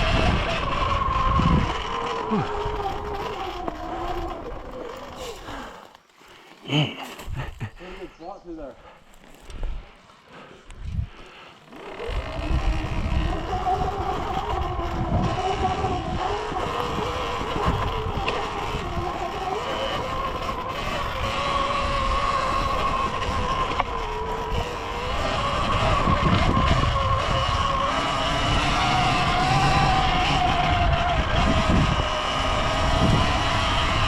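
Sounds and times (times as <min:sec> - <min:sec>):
electric motor whine: 0:00.0 - 0:05.7, 0:11.6 - 0:34.0.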